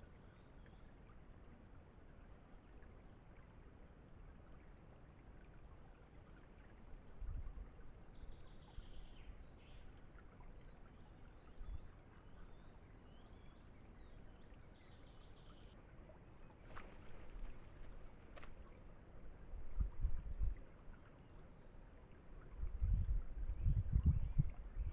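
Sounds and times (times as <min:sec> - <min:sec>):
songbird singing trills: 0:07.1 - 0:18.0
low steady rumble: 0:13.5 - 0:24.9.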